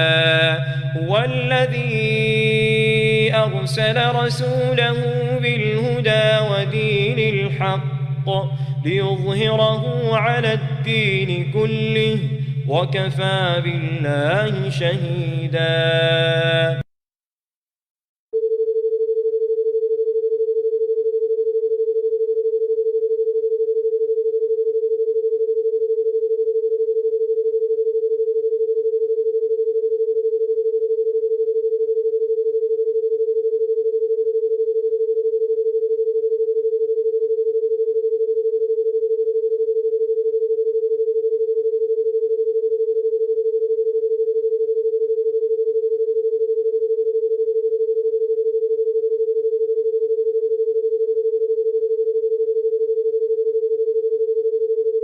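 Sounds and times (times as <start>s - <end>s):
steady electronic tone: 0.0s - 16.9s.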